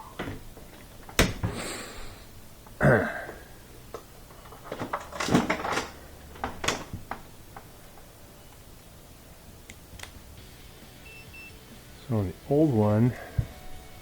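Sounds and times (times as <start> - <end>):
handling clicks and knocks: 0.0 - 1.6, 2.6 - 8.6.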